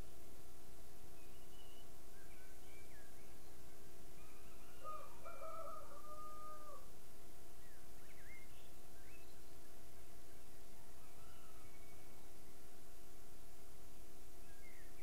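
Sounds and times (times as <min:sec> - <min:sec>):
faint steady hum: 0:00.0 - 0:15.0
birds chirping: 0:07.6 - 0:12.4.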